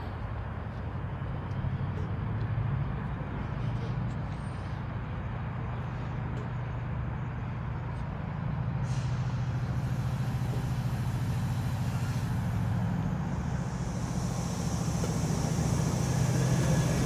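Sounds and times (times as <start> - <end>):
diesel locomotive throbbing: 0.0 - 17.0
brief hiss: 8.8 - 17.0.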